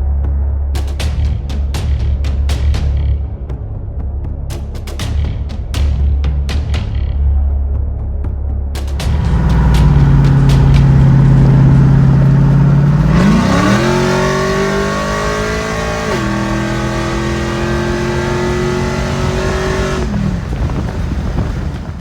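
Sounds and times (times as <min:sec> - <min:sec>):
truck engine accelerating hard: 0:09.0 - 0:22.0.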